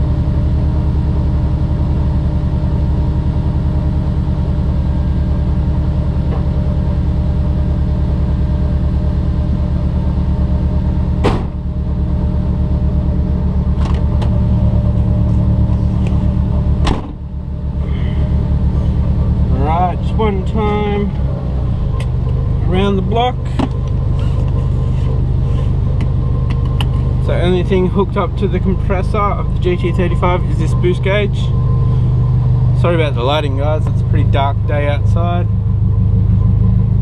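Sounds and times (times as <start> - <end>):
car engine running: 0.0 - 37.0
sharp knocks: 11.2 - 11.6.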